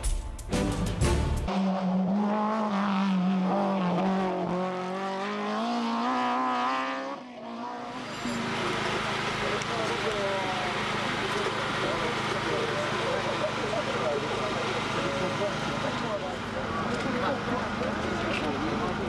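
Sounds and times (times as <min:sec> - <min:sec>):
car engine at high revs: 0:01.5 - 0:19.0.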